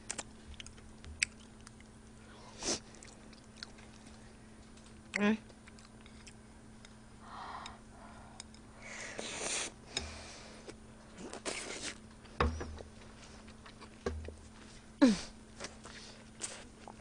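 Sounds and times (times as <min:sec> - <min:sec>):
chewing and mouth noises: 0:00.0 - 0:07.0.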